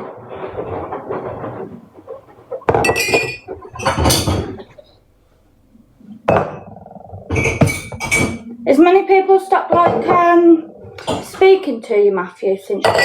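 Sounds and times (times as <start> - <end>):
crockery clinking: 2.7 - 4.7, 7.3 - 8.4.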